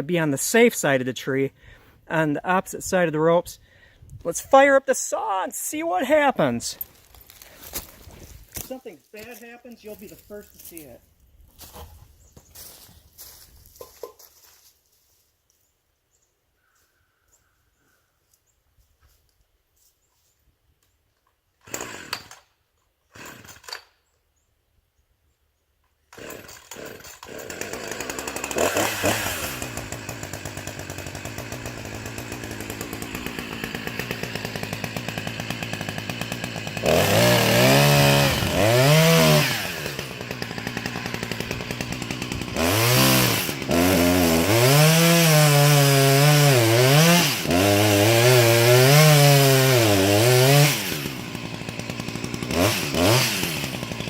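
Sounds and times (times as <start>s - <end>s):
chainsaw cutting into tree trunk: 6.8s - 9.4s, 21.6s - 24.0s, 26.1s - 54.0s
chainsaw engine revving: 21.6s - 22.5s, 23.2s - 23.9s, 26.1s - 54.0s
chainsaw pull-start: 21.6s - 24.0s, 26.1s - 54.0s.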